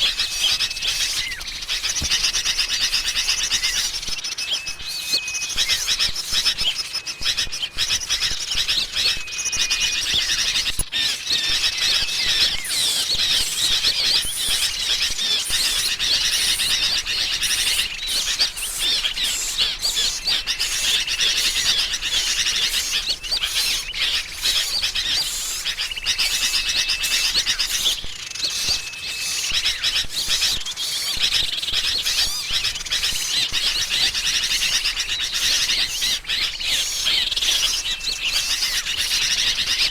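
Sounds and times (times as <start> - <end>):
birds chirping chatter: 0.0 - 39.9.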